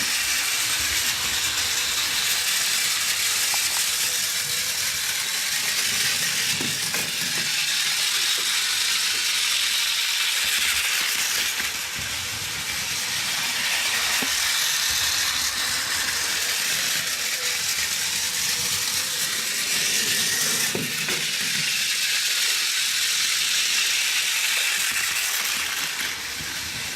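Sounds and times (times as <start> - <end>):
plastic wheels rattling: 0.0 - 26.9
toy train motor whirring: 0.0 - 26.9.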